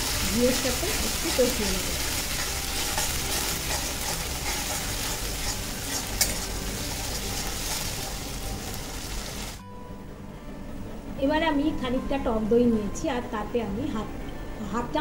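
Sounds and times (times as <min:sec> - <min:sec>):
metal spatula scraping pan: 0:00.0 - 0:08.0
spices sizzling in hot fat: 0:00.0 - 0:09.6.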